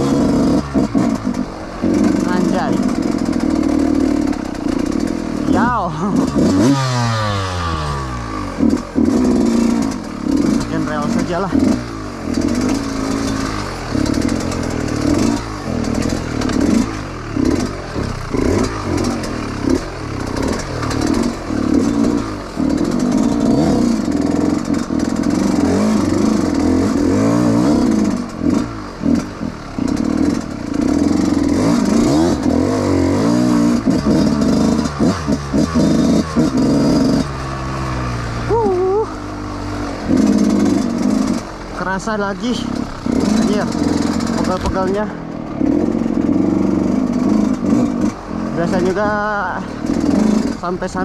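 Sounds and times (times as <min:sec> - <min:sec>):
dirt bike engine revving: 0:00.0 - 0:51.0
bike clattering over rough ground: 0:06.2 - 0:37.6.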